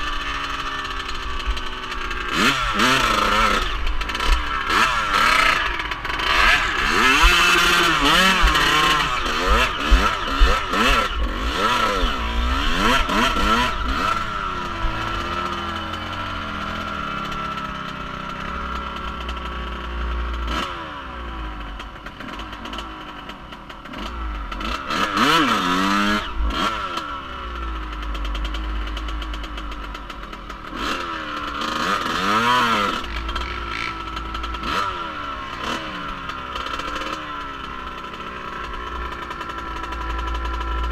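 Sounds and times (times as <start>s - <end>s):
off-road vehicle engine revving: 0.0s - 40.9s.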